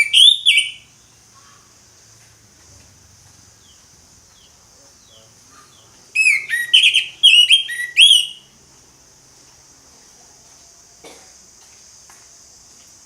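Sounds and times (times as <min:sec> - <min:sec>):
bird singing whistled notes: 0:00.0 - 0:01.1, 0:06.2 - 0:08.5.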